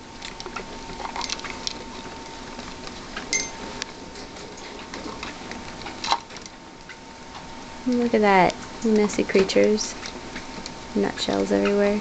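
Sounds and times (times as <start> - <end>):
rats rustling among nutshells: 0.0 - 11.9
faint steady whine: 0.0 - 12.0
sharp clink: 3.3 - 3.6.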